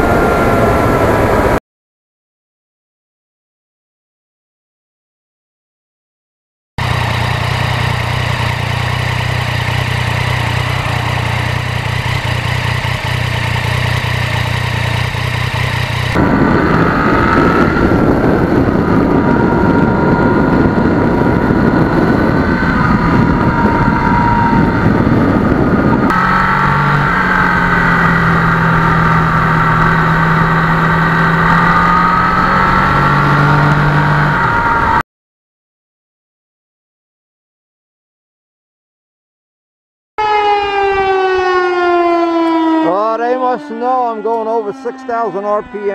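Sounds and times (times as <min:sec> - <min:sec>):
motorcycle engine running: 0:06.8 - 0:35.0
wavering high whine: 0:16.1 - 0:35.0.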